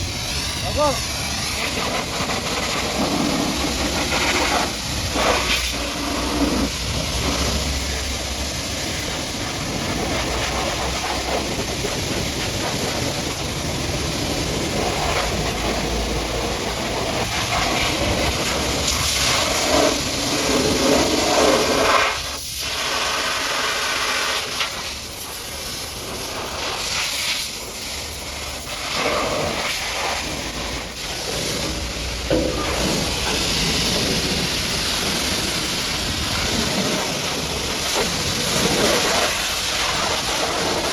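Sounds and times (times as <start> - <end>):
pressure washer jet spraying: 0.0 - 40.9.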